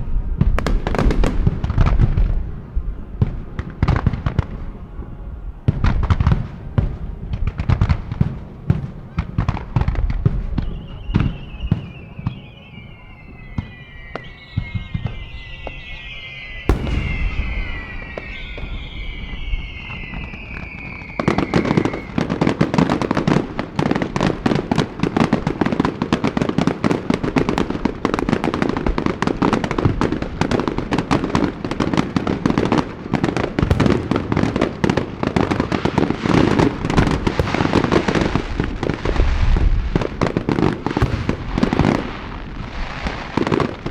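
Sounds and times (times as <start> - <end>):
firework whistles falling in pitch: 10.5 - 22.8, 33.5 - 43.9
heavy firework boom: 13.3 - 22.6, 33.6 - 43.5
rapid firework crackle: 13.3 - 43.9
firework shell bursts: 13.7 - 20.2, 33.7 - 35.0, 36.3 - 39.7.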